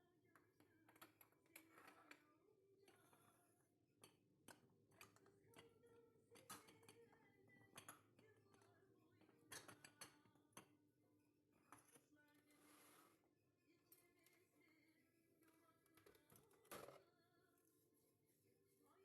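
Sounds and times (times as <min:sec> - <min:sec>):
small objects clicking and tapping: 0:04.0 - 0:05.7.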